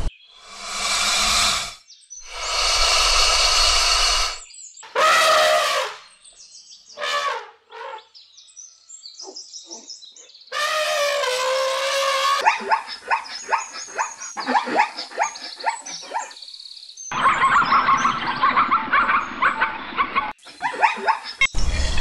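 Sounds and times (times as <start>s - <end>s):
pitched animal call: 0.0s - 4.4s
rough animal calls: 0.0s - 4.4s
faint chirps: 0.0s - 4.5s.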